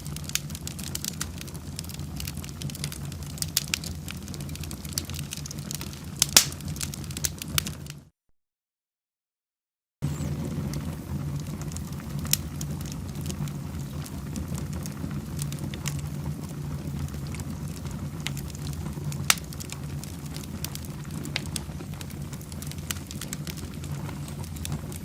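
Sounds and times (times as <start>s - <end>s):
sharp pops of fire: 0.0s - 8.0s, 10.1s - 25.0s
wood fire crackling: 0.0s - 8.1s, 10.0s - 25.0s.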